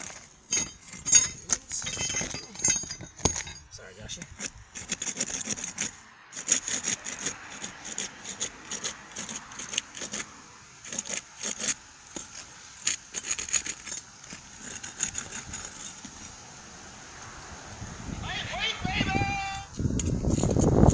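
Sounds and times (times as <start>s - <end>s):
roof shingles scraping and crinkling: 0.0s - 17.3s, 18.2s - 20.9s.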